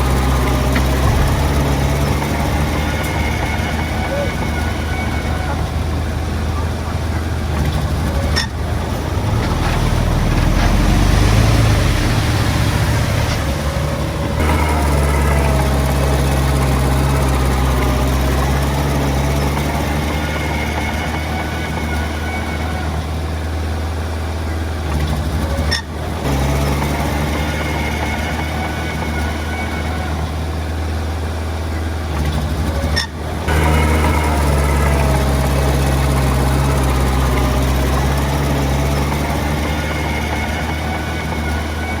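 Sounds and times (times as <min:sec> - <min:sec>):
mechanical clattering: 0:00.0 - 0:18.8
heavy diesel engines running: 0:00.0 - 0:42.0.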